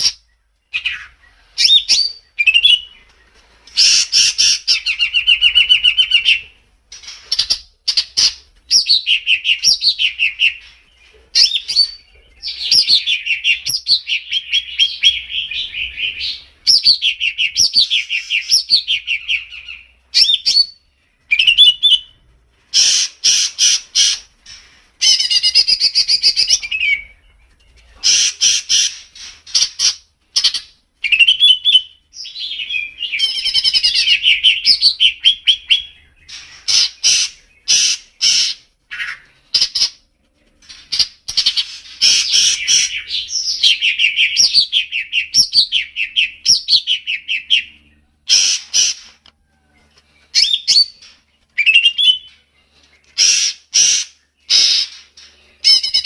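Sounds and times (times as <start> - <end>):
songbird trills and whistles: 0.0 - 22.2, 25.0 - 40.0.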